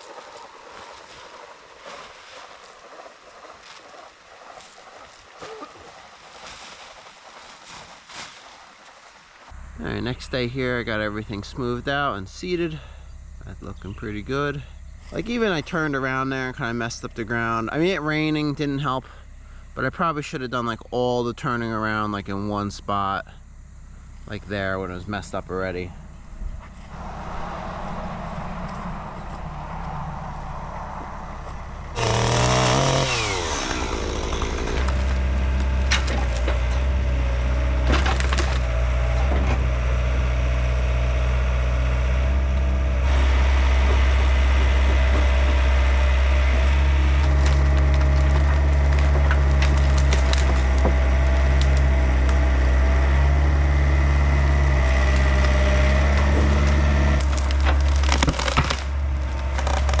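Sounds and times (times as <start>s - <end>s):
diesel engine droning: 9.5s - 60.0s
sharp knocks and creaks: 31.0s - 40.0s, 42.5s - 60.0s.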